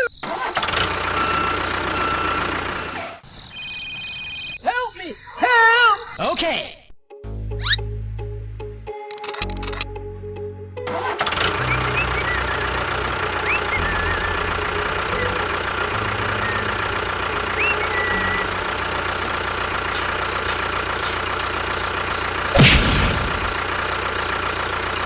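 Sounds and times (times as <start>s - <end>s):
tractor engine droning: 10.9s - 25.0s.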